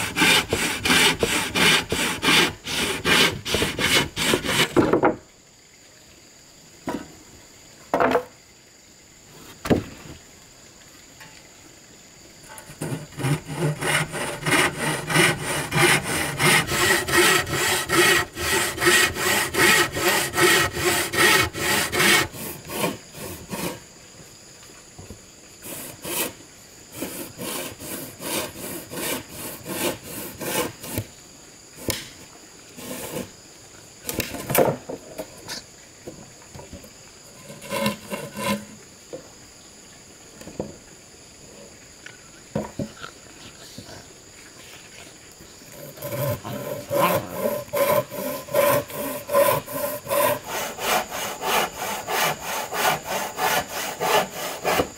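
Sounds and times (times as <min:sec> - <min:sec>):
hand saw cutting wood: 0:00.0 - 0:05.0, 0:12.5 - 0:23.8, 0:25.6 - 0:31.1, 0:32.8 - 0:33.3, 0:37.4 - 0:38.8, 0:45.7 - 0:54.9.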